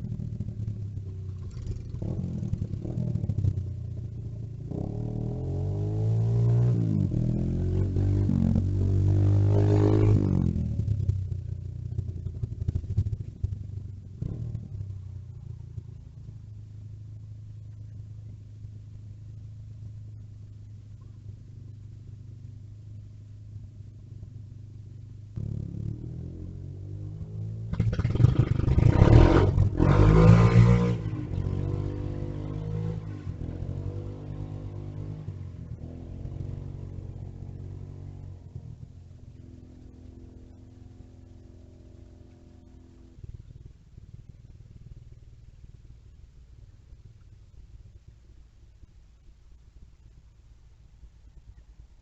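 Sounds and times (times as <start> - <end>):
vehicle engine revving: 0.0 - 16.0, 25.4 - 43.7
low steady hum: 0.0 - 52.0
mini bike engine passing: 27.7 - 33.4.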